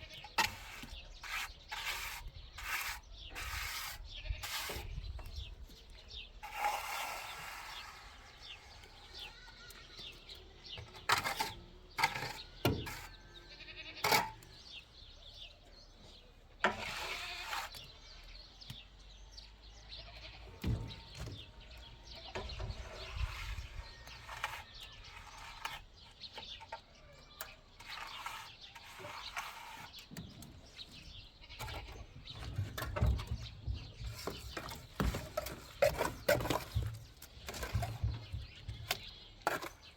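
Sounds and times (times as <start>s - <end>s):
livestock bleating: 13.4s - 14.1s, 19.9s - 20.6s.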